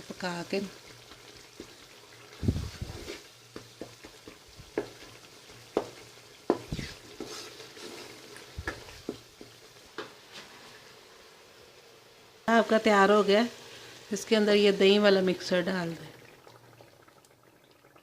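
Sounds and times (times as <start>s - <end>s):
faint sizzle of frying: 0.0s - 18.0s
spoon knocking against pot: 5.7s - 6.7s.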